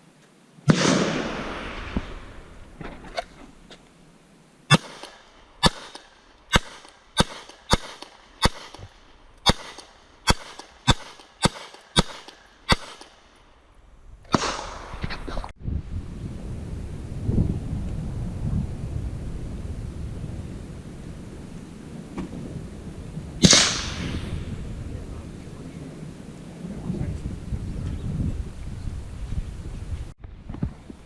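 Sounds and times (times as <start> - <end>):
gunshots: 0.7 - 2.4, 4.7 - 13.2, 14.3 - 15.0, 23.4 - 24.5.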